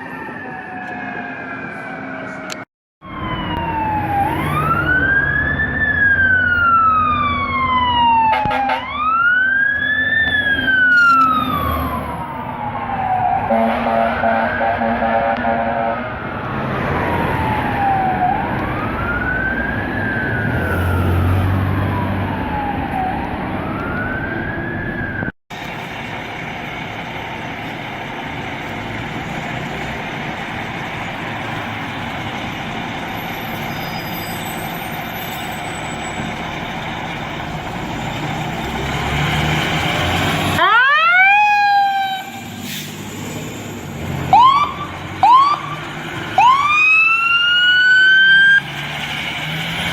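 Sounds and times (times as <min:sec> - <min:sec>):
rising siren whoops: 0:00.0 - 0:25.3, 0:37.4 - 0:42.6, 0:43.6 - 0:48.7
emergency vehicle siren wailing: 0:00.0 - 0:49.9
engine and road noise: 0:00.0 - 0:49.9.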